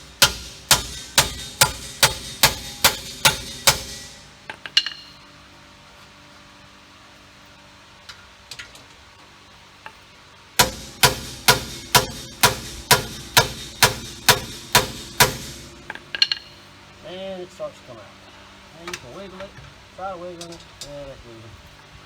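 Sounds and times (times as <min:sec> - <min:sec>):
hammer blows on metal: 0:00.0 - 0:05.2, 0:10.6 - 0:16.6.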